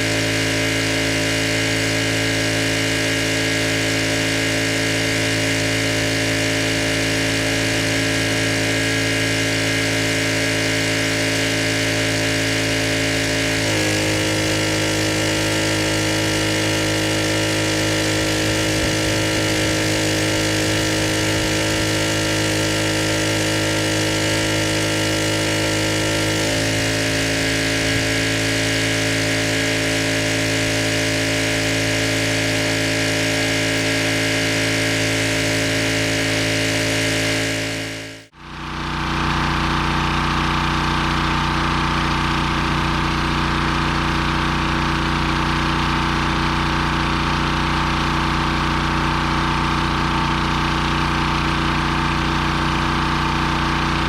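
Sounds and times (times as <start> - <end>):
pressure washer engine running: 0.0 - 54.0.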